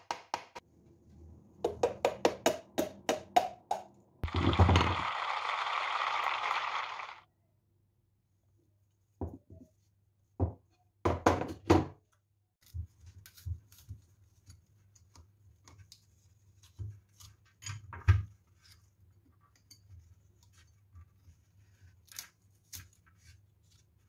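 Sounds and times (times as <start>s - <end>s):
household objects knocking: 10.4s - 12.0s.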